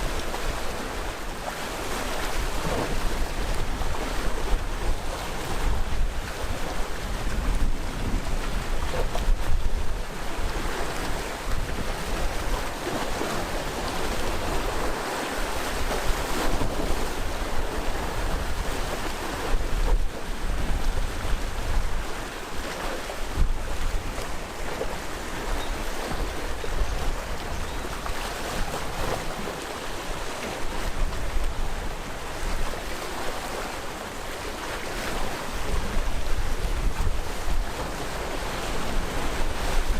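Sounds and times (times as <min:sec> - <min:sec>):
waves on rocky shore: 0:00.0 - 0:39.9
wind buffeting microphone: 0:02.4 - 0:15.0, 0:35.6 - 0:39.9.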